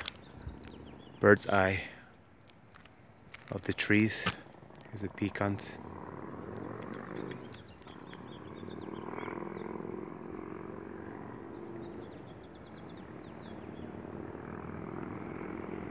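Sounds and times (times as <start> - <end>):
small birds chirping: 0.0 - 15.9
steady low hum: 0.1 - 15.9.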